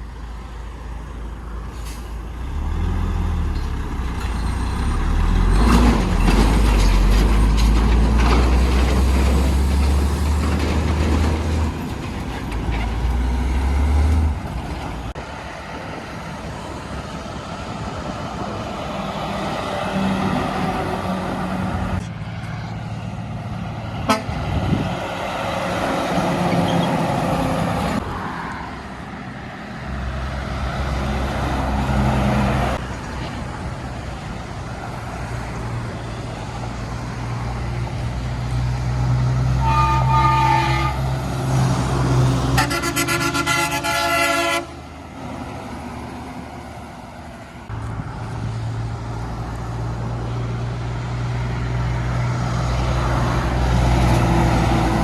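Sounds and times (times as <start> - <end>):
heavy trucks passing: 0.0 - 55.0
truck horn: 24.0 - 24.6, 39.5 - 41.3, 42.4 - 44.9.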